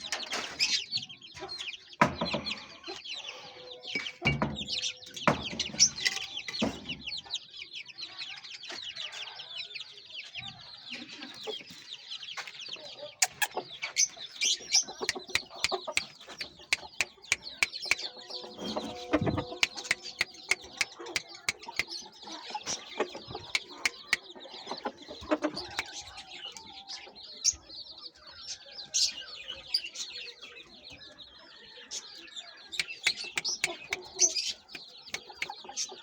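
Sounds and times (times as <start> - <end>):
chickens clucking and peeping: 0.0 - 36.0
sharp clicks: 15.1 - 18.0, 19.6 - 22.0, 32.8 - 34.1.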